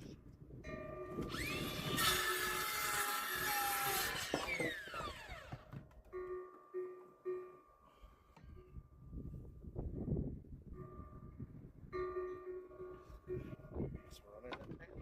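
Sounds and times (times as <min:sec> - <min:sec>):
power saw whining: 0:01.1 - 0:06.0
saw cutting wooden board: 0:01.2 - 0:05.8.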